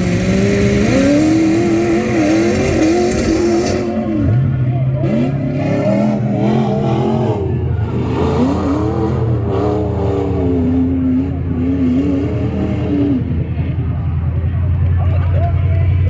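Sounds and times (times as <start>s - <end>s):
truck engine revving hard: 0.0s - 13.6s.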